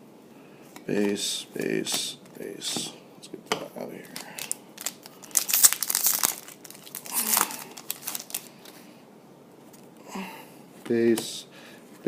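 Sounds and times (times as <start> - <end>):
plastic wrapper crinkling and tearing: 4.0 - 8.8.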